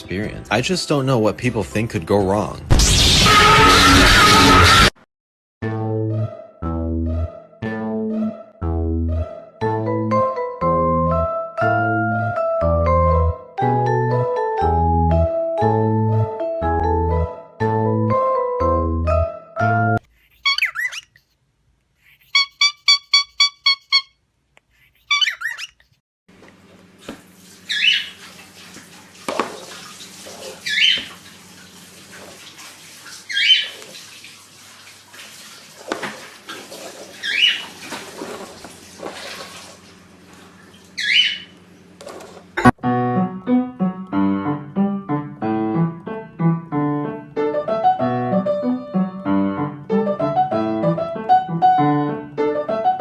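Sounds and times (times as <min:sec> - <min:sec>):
piano music: 0:05.6 - 0:20.0, 0:42.6 - 0:53.0
parrot calling: 0:20.1 - 0:21.3, 0:22.0 - 0:24.2, 0:24.8 - 0:25.9, 0:27.7 - 0:28.2, 0:30.5 - 0:31.1, 0:33.3 - 0:33.8, 0:37.2 - 0:37.8, 0:41.0 - 0:41.6.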